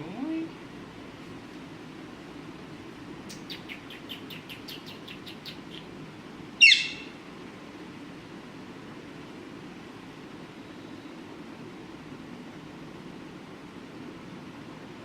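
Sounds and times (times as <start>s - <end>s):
parakeet chirping: 3.3s - 5.9s, 6.6s - 7.2s
parakeet harsh squawk: 6.6s - 7.2s.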